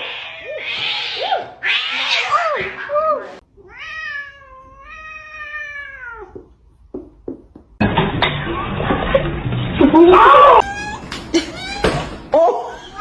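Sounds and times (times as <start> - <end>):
cat meowing: 0.0 - 6.4.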